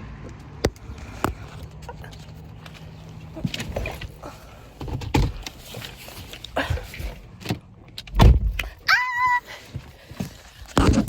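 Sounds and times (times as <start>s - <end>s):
knocks and thuds in a car: 4.8s - 6.0s, 6.6s - 8.8s, 9.7s - 11.0s.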